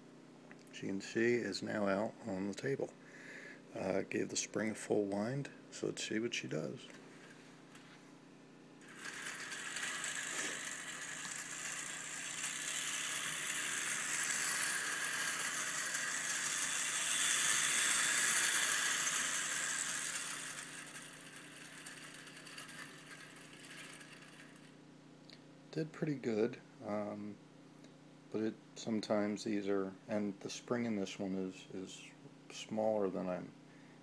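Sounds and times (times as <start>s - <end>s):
clockwork toy train whirring: 8.8s - 24.8s
toy train rattling: 8.8s - 24.8s.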